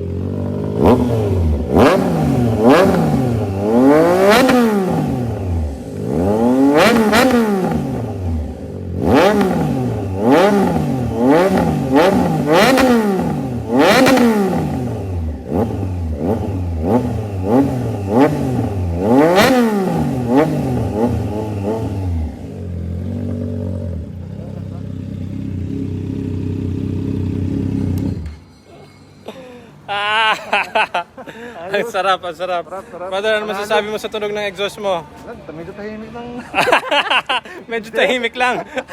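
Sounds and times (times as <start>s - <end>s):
motorcycle engine revving: 0.0s - 28.6s.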